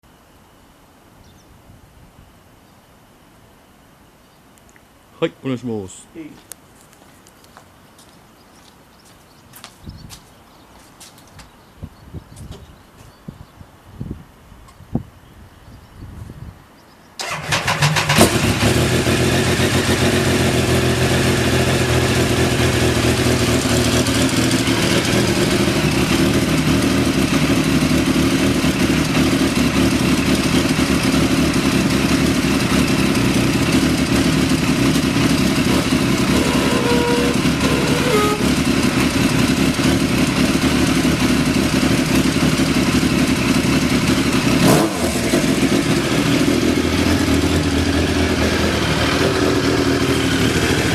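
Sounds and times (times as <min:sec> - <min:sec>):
motorcycle engine idling: 0:17.2 - 0:50.9.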